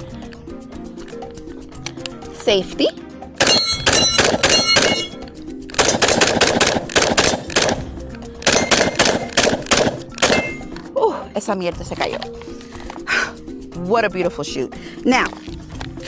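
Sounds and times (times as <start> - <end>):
rifle shots: 3.4 - 5.2, 5.8 - 10.8
steel targets ringing: 3.4 - 5.3, 8.5 - 9.4, 10.1 - 10.7.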